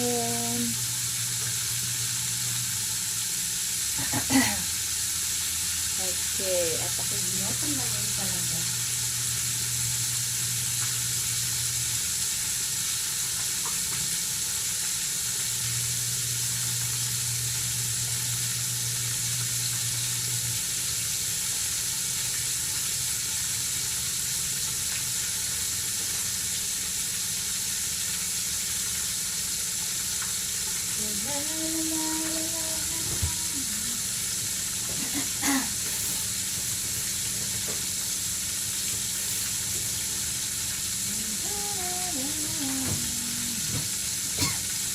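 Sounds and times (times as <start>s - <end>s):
short hum-like voice: 0.0s - 0.9s, 3.9s - 4.8s, 30.9s - 36.3s, 41.0s - 44.7s
chicken deep-frying in oil: 0.0s - 44.9s.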